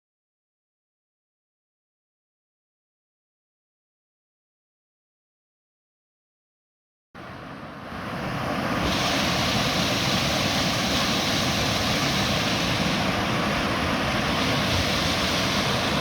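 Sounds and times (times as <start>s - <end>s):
waterfall rushing: 8.3s - 16.0s.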